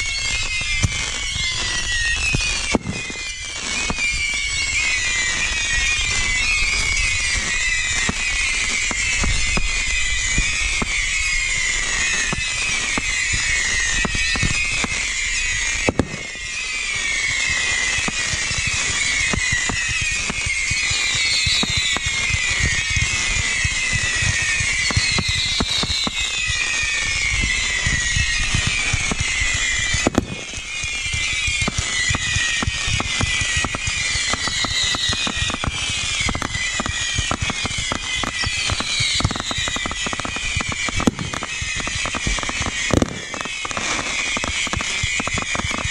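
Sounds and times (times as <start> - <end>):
fireworks crackling: 0.0 - 45.9
fireworks whistling: 0.0 - 45.9
heavy firework bangs: 0.0 - 45.9.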